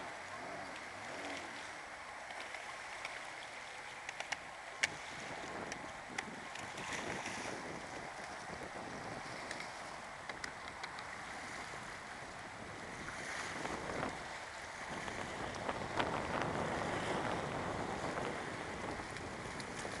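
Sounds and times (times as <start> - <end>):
water slapping and splashing: 0.0 - 20.0
wind on microphone: 4.7 - 20.0.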